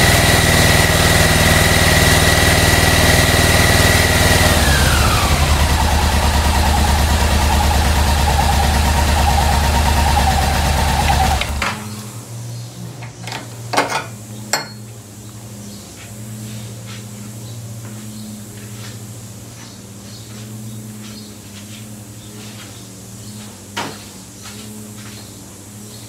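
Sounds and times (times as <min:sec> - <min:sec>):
motorcycle engine idling: 0:00.0 - 0:12.2
sharp metallic clinks: 0:13.9 - 0:14.8.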